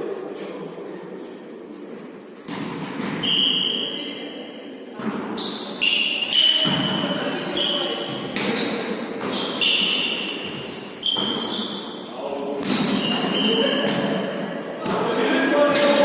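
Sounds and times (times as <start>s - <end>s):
volleyball hits and bounces: 2.4s - 3.6s, 5.0s - 7.3s, 8.0s - 11.5s, 12.6s - 15.1s.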